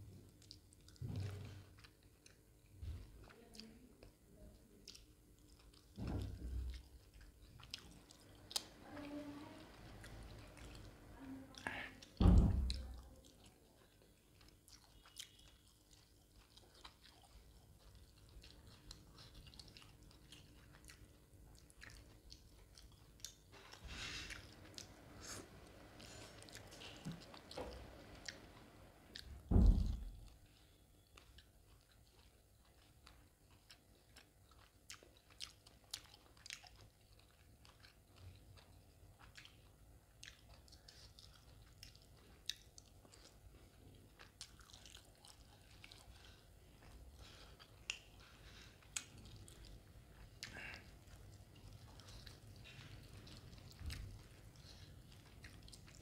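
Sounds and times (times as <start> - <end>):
wet mouth chewing: 0.2 - 4.2, 4.8 - 56.0
food crunching: 4.8 - 29.3, 30.2 - 56.0
dull thump: 29.5 - 30.0.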